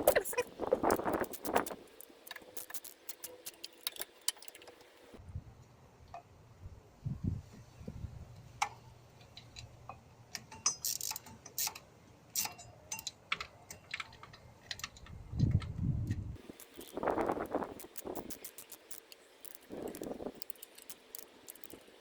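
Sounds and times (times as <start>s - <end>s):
metal hand tools clicking: 16.4s - 22.0s.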